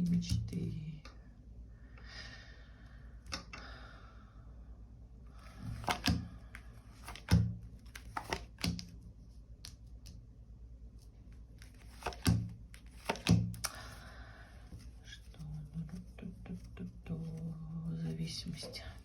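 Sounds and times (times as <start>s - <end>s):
cards tapping on a table: 5.7s - 6.3s, 7.0s - 8.9s, 11.8s - 13.7s.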